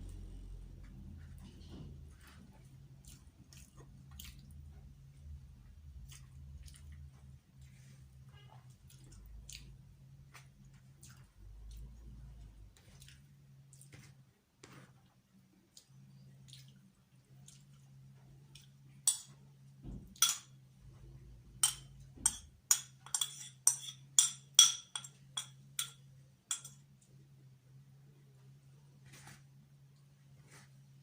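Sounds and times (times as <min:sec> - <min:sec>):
steady low hum: 0:00.0 - 0:08.3
cutlery clinking on a plate: 0:19.1 - 0:19.4, 0:20.1 - 0:20.6, 0:21.6 - 0:26.8.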